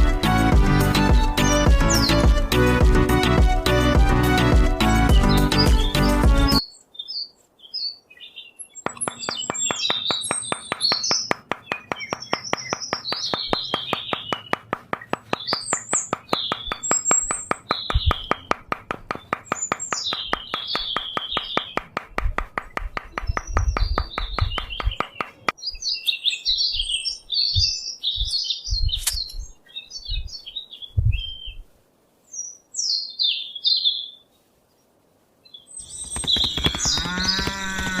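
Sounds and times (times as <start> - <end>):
small birds chirping: 1.0 - 2.6, 5.0 - 38.0
fast regular ticking: 8.8 - 25.5, 35.8 - 38.0
low thumps: 8.9 - 25.5
cow mooing: 37.1 - 38.0.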